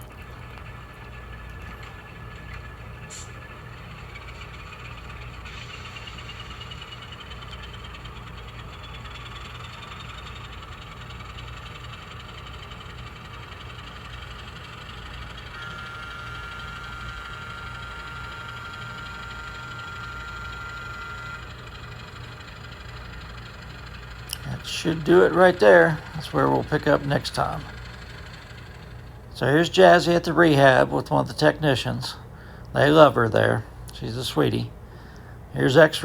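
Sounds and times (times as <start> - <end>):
low hum: 0.0 - 36.0
model train motor whine: 0.0 - 36.0
steady high tone: 15.3 - 21.7, 24.3 - 28.3.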